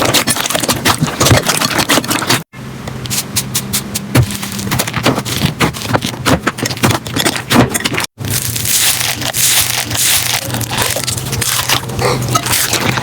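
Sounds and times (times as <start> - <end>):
slime crackling and popping: 4.2 - 11.9.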